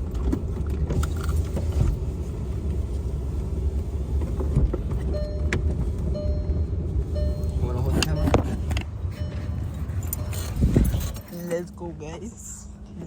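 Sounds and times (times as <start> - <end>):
car engine idling: 0.0 - 13.0
car warning chime dinging: 5.1 - 11.7.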